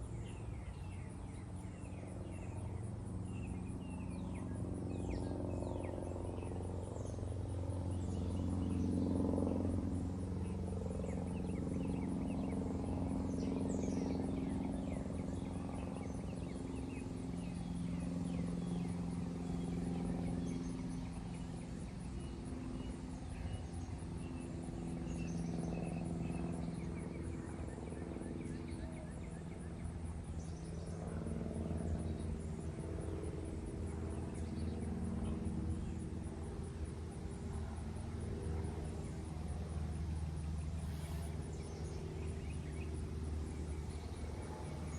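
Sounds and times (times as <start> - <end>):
insects chirping: 0.0 - 44.9
low mechanical drone: 0.0 - 44.9
faint bird chirps: 40.5 - 44.2.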